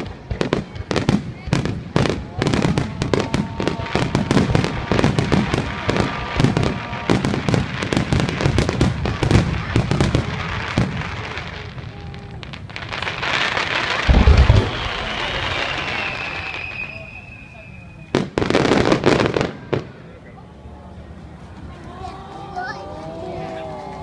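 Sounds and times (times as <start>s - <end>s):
fireworks hiss: 0.0s - 20.0s
fireworks crackling bangs: 0.0s - 20.2s
deep boom: 14.0s - 16.3s
whistling tone: 14.4s - 18.2s.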